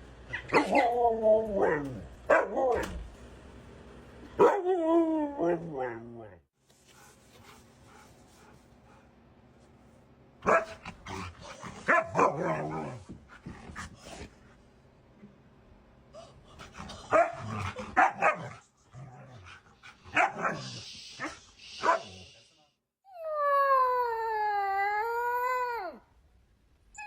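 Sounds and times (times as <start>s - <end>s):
dog barking and whining: 0.3s - 3.0s, 4.4s - 6.3s, 10.4s - 13.2s, 17.0s - 19.5s, 20.1s - 22.1s.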